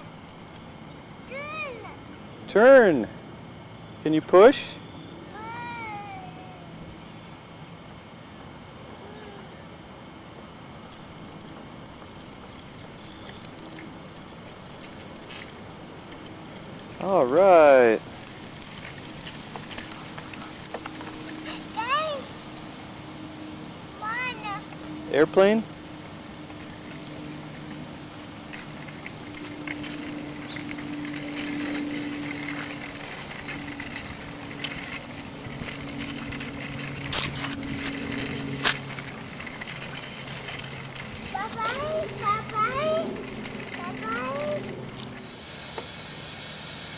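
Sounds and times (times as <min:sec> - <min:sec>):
airplane engine drone: 0:00.0 - 0:46.9
bicycle rolling and rattling: 0:00.0 - 0:46.9
quick clicks and ticks: 0:28.5 - 0:45.9.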